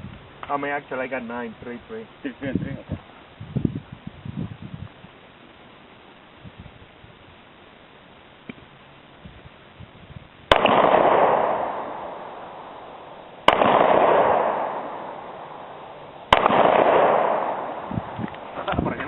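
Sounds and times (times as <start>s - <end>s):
pistol shots echoing: 10.5s - 18.2s.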